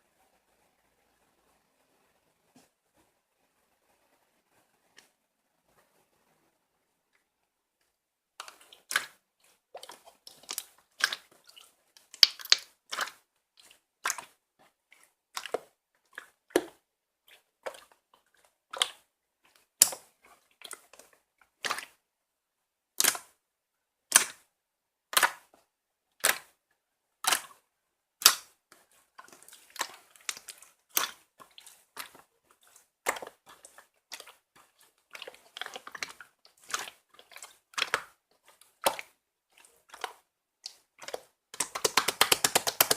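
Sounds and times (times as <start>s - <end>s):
slime crackles: 28.2s - 42.9s.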